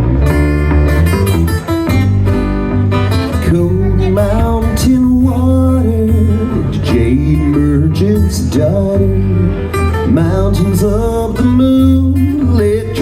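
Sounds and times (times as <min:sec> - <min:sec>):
strummed acoustic guitar: 0:00.0 - 0:13.0
sliding melody line: 0:03.5 - 0:13.0.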